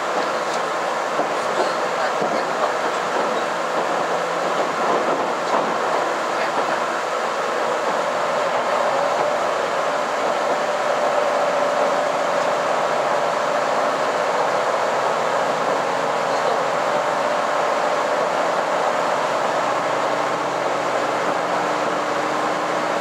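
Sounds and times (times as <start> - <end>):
train running noise: 0.0 - 23.0.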